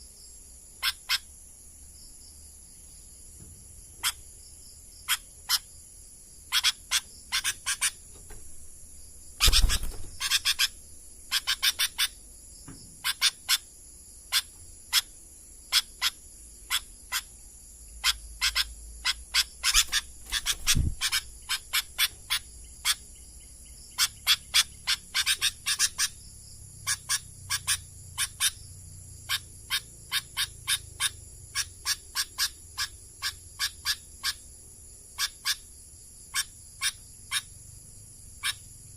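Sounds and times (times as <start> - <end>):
high insect drone: 0.0 - 38.9
bulbul calling in sharp notes: 6.4 - 8.7, 9.3 - 12.2, 18.0 - 23.0.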